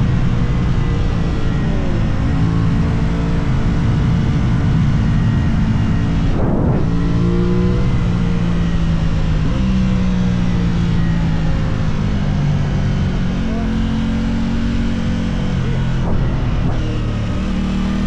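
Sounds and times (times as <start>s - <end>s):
motorcycle engine running: 0.1s - 18.0s
wind noise: 2.1s - 9.6s, 15.4s - 17.4s.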